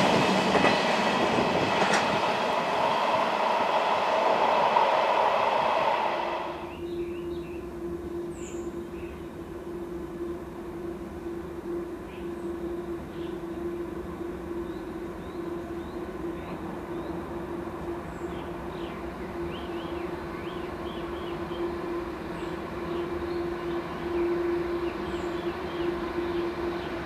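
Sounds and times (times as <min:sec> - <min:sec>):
electric freight train humming: 0:00.0 - 0:27.0
birds chirping: 0:18.1 - 0:21.8, 0:22.4 - 0:27.0.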